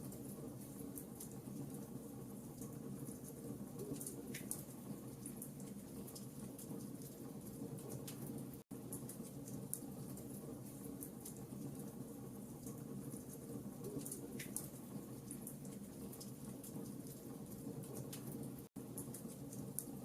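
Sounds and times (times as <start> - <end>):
wood fire crackling and popping: 12.6 - 20.0.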